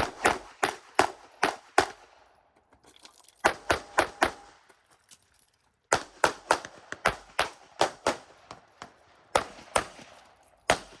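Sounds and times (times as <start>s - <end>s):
pistol firing rapid shots: 0.0s - 2.1s, 5.9s - 11.0s.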